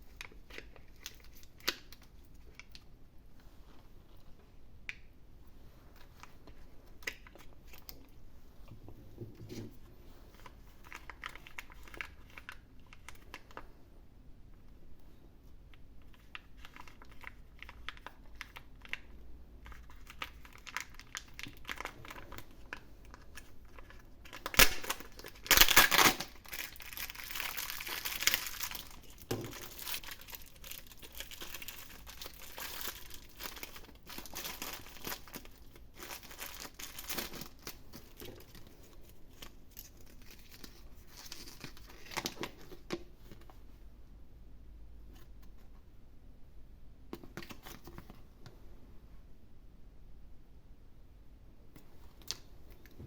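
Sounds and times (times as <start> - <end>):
wrapper crinkling and tearing: 0.1 - 2.9, 10.4 - 13.6, 16.1 - 43.0.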